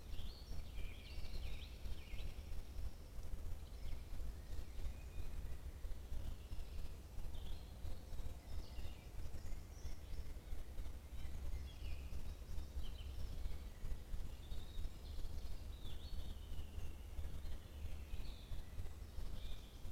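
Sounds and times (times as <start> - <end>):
songbirds singing: 0.0 - 19.9.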